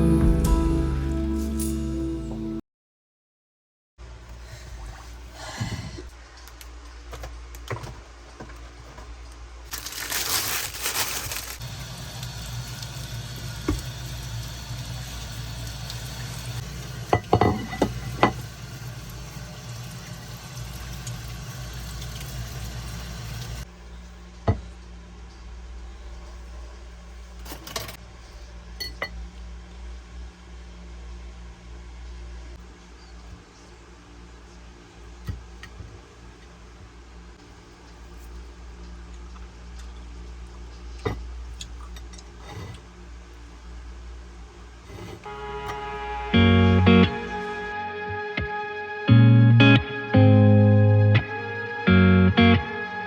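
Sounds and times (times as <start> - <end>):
dishes and utensils clinking: 17.1 - 18.4.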